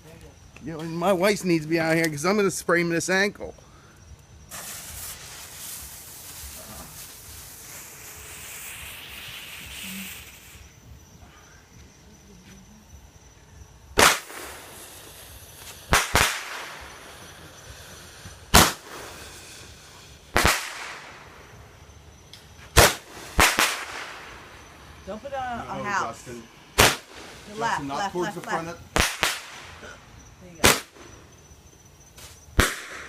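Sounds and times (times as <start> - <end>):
firework fuse hissing: 0.8 - 33.0
loud firework bangs: 4.5 - 10.7, 14.0 - 21.8, 22.6 - 24.8, 26.7 - 27.9, 28.5 - 30.0, 30.6 - 31.4, 32.5 - 33.0.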